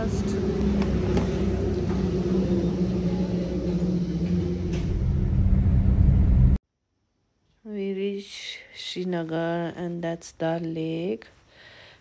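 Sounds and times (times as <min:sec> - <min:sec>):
motor vehicle engine hum: 0:00.0 - 0:06.6.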